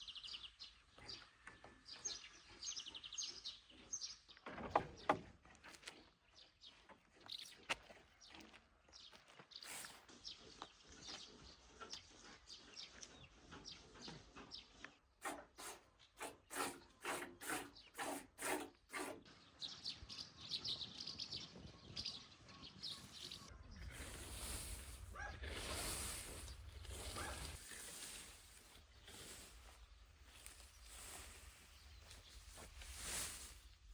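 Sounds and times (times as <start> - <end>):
small birds chirping: 0.0 - 33.9
regular strokes: 15.2 - 19.2, 23.4 - 33.9
rustling noise: 22.9 - 33.9.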